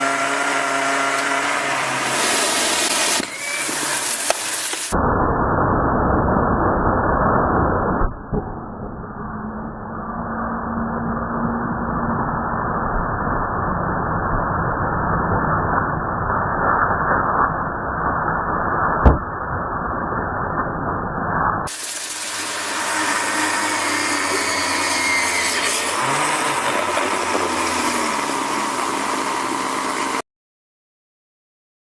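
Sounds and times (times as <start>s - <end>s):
vacuum cleaner motor whine: 0.0s - 5.0s, 21.7s - 30.2s
hiss: 1.9s - 5.0s, 21.7s - 30.2s.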